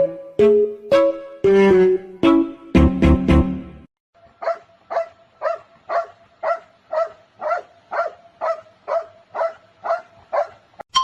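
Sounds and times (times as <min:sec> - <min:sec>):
dog barking: 0:04.4 - 0:10.8.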